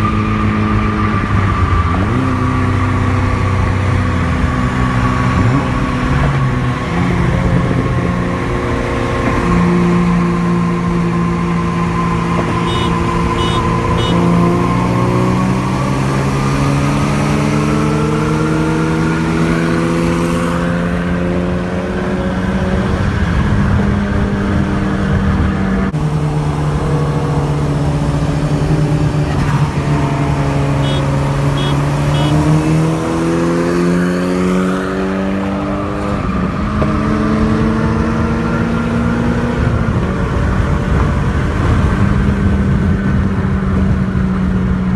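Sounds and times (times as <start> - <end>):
car engine running: 12.3 - 16.0, 25.9 - 32.7.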